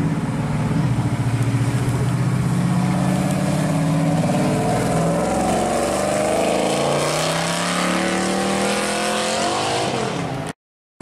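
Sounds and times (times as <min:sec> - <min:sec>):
car engine accelerating: 0:00.0 - 0:10.5.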